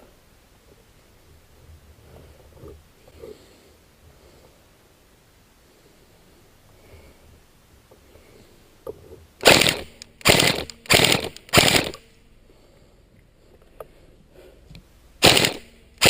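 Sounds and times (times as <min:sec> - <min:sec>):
airsoft gun full-auto bursts: 0:09.4 - 0:12.1, 0:15.2 - 0:16.0.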